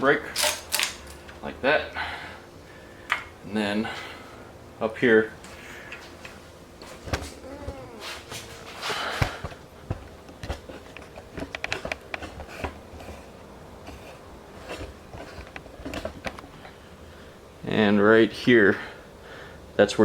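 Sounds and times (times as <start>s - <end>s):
faint steady hum: 0.0s - 20.0s
small clicks and knocks: 9.2s - 13.2s.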